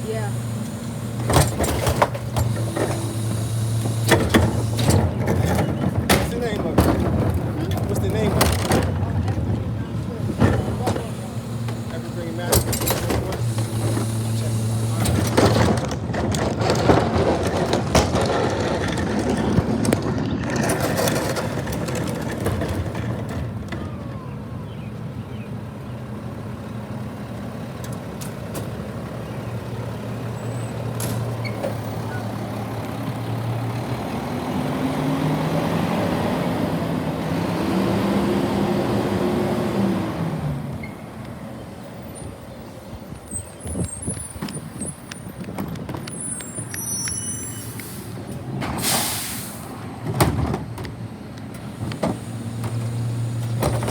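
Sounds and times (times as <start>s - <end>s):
garbage truck engine revving: 0.0s - 53.9s
knocks and clatter: 1.2s - 14.2s, 14.9s - 24.2s, 50.0s - 53.9s.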